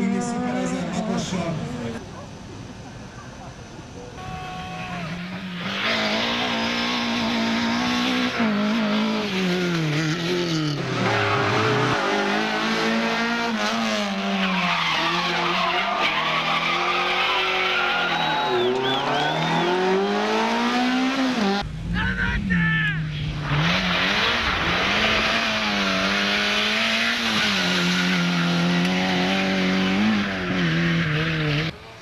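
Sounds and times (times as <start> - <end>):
tyres skidding and squealing: 3.9 - 21.4, 23.0 - 31.8
rally car engine revving: 5.0 - 21.9, 23.1 - 32.0.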